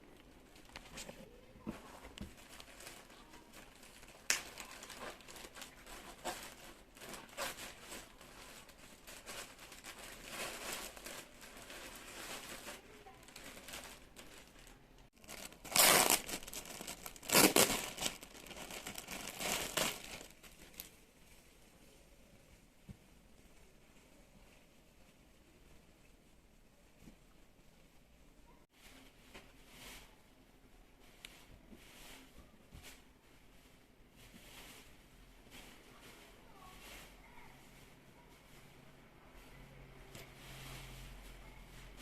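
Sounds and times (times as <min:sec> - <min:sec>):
packaging crinkling and rustling: 0:00.6 - 0:21.0.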